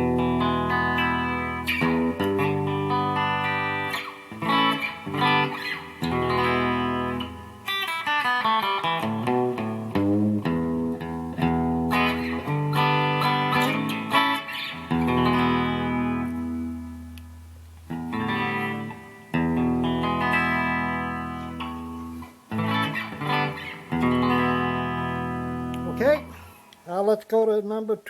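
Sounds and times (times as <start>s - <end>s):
electric guitar chords ringing: 0.0s - 26.7s.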